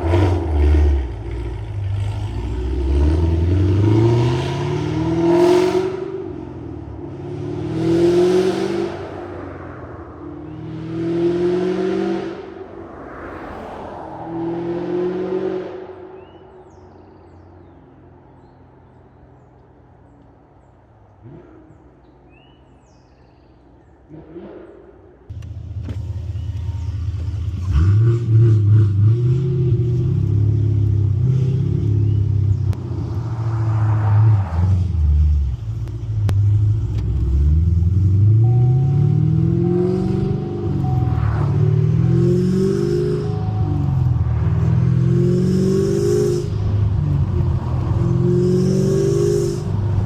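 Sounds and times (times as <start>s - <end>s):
car engine accelerating: 0.0s - 9.6s, 24.1s - 50.0s
car passing by: 7.7s - 16.4s, 32.7s - 50.0s.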